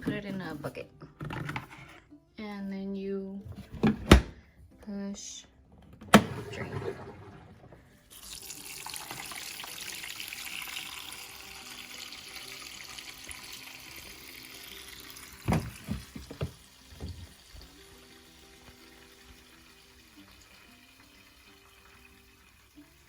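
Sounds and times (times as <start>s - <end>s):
water draining into a bucket: 8.1s - 23.0s.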